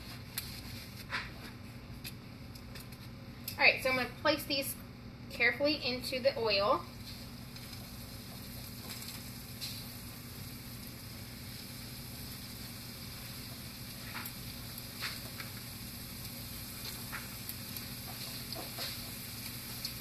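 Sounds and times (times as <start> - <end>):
food frying in oil: 5.4 - 20.0.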